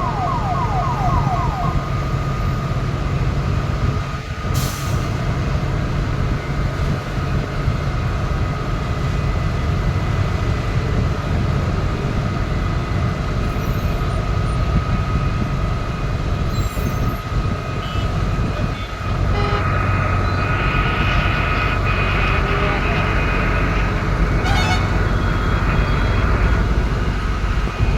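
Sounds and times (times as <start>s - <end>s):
heavy vehicle engine rumbling: 0.0s - 27.9s
thin steady whine: 19.6s - 27.9s.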